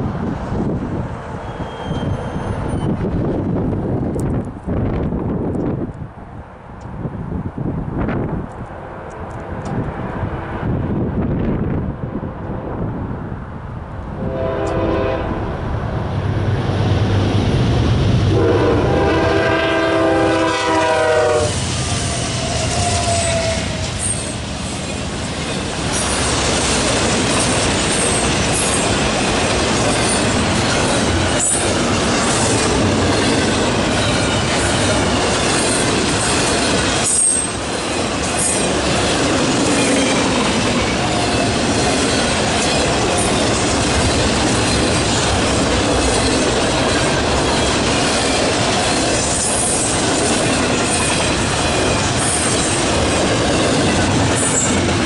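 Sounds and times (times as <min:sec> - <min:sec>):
train horn blasts: 0:14.2 - 0:15.6, 0:18.3 - 0:24.3
train wheels clattering on rails: 0:19.0 - 0:55.0.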